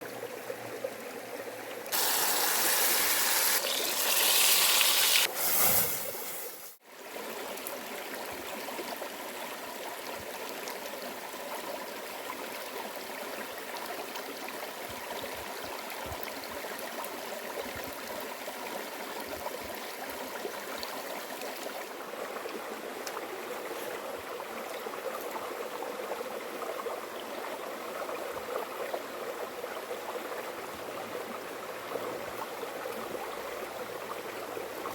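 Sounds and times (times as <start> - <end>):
stream water flowing: 0.0 - 34.9
bright rush of water: 1.9 - 6.8.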